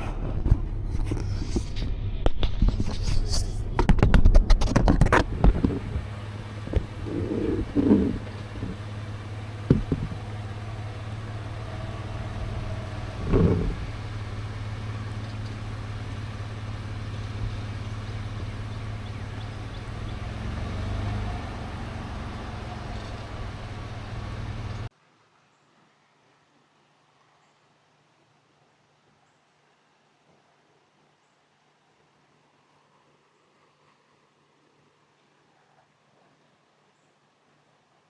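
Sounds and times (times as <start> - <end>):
car engine droning: 0.0 - 24.9
short knocks: 3.6 - 14.6.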